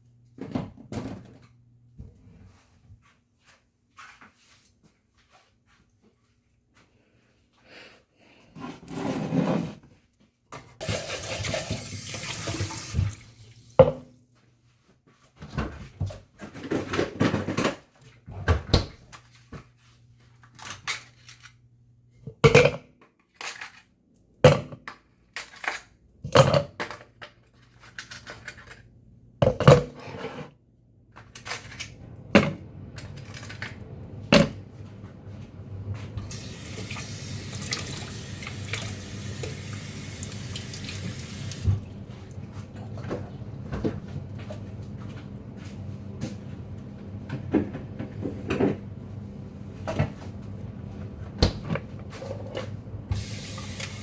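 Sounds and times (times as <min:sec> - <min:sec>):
tap running: 0:10.8 - 0:14.0, 0:32.0 - 0:46.4, 0:49.8 - 0:54.0
low steady hum: 0:30.9 - 0:54.0.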